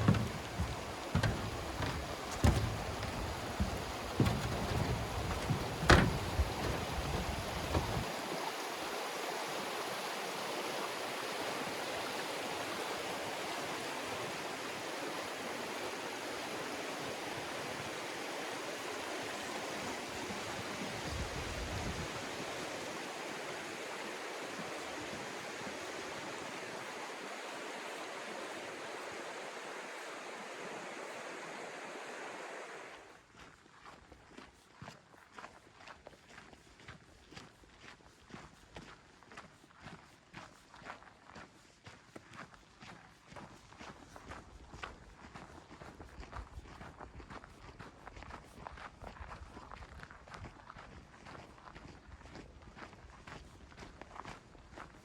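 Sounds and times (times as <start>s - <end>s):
low thumps: 0.0s - 8.0s
river water rushing: 0.0s - 19.8s.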